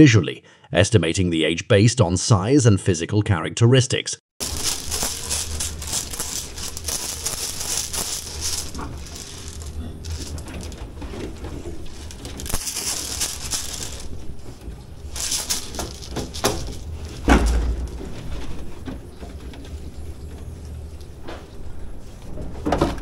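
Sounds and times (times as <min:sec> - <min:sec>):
low steady hum: 0:04.4 - 0:22.2
rustling noises: 0:04.4 - 0:23.0.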